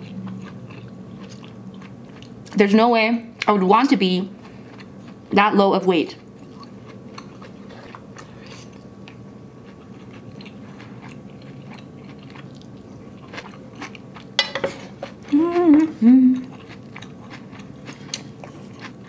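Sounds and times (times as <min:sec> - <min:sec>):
noodles chewing and eating: 0:06.2 - 0:14.3, 0:14.9 - 0:19.0
person humming: 0:15.3 - 0:16.5.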